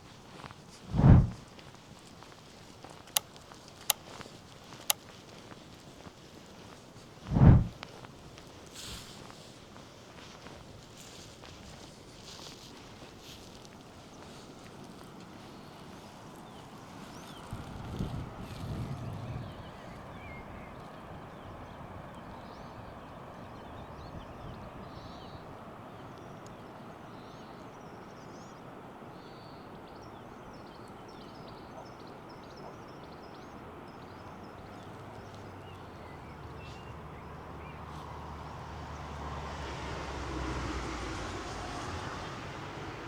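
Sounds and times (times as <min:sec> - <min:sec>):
small birds chirping: 0:00.0 - 0:39.2
approaching vehicle engine hum: 0:00.8 - 0:01.4, 0:07.2 - 0:07.9, 0:33.7 - 0:43.0.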